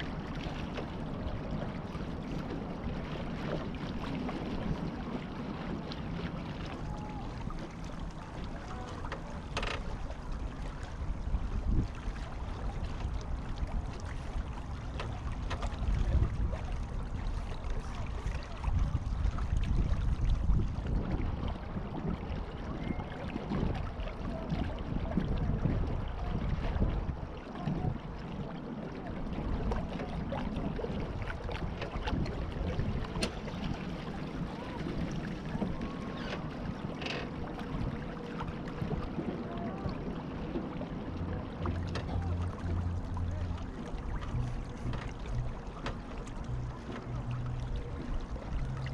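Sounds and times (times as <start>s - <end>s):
small splashes and ticks: 0.0s - 25.4s, 29.5s - 48.9s
water rushing along a hull: 0.0s - 48.9s
wind rumble on microphone: 0.0s - 48.9s
low rumble: 37.5s - 48.9s.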